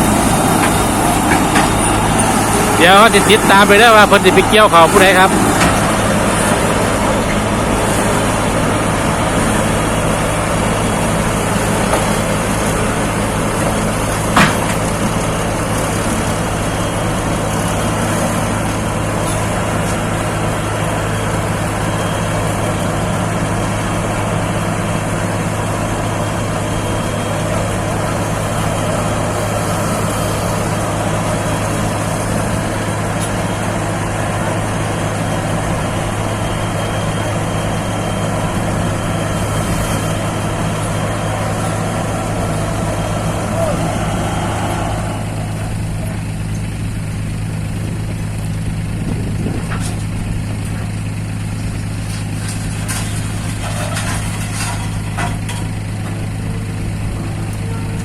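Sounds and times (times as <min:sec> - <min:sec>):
heavy vehicle engine running: 0:00.0 - 0:58.0.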